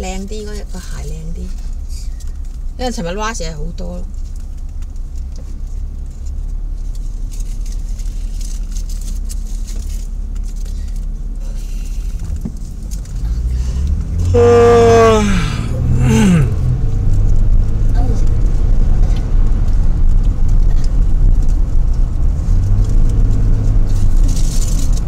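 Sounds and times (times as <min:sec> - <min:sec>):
car engine running: 0:00.0 - 0:25.0
short tones sliding down: 0:14.3 - 0:16.5.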